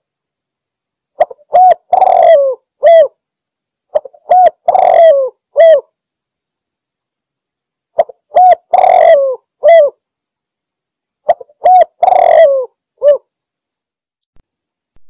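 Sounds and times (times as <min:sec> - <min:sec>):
dove cooing: 0:01.2 - 0:03.2, 0:03.9 - 0:05.9, 0:08.0 - 0:10.0, 0:11.3 - 0:13.3.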